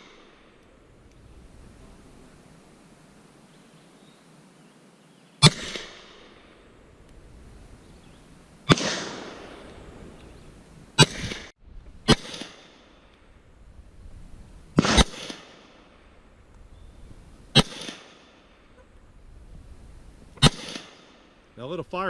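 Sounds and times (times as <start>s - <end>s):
gunshots with echo: 5.4s - 6.4s, 8.7s - 9.7s, 14.8s - 15.8s, 17.6s - 18.3s, 20.4s - 21.3s.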